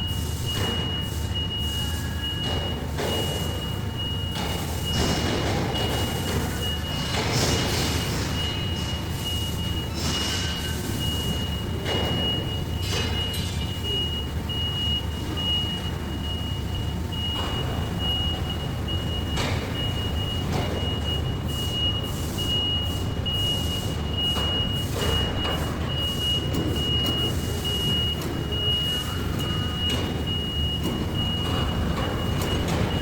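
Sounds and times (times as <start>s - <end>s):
machinery low hum: 0.0s - 33.0s
high-pitched beep: 8.0s - 33.0s.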